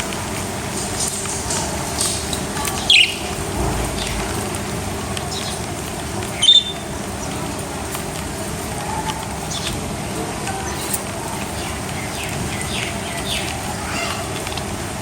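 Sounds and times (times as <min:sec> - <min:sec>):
small parrots chirping: 0:02.7 - 0:03.3, 0:06.3 - 0:06.8.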